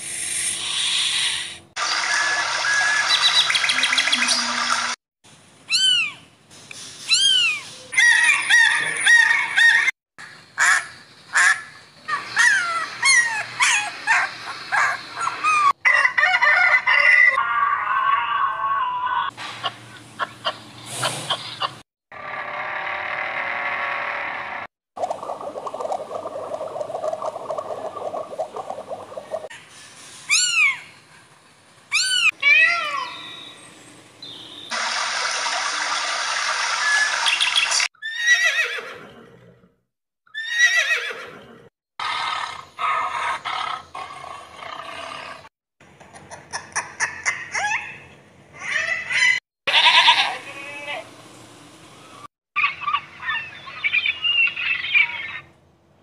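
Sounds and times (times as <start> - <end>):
harsh animal calls: 20.2 - 24.7, 42.0 - 45.5.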